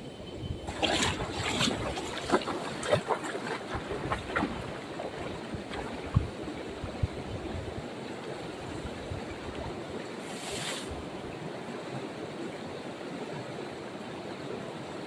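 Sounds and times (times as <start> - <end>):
water rushing in a canal: 0.0 - 15.0
brief sharp hiss: 10.2 - 11.0.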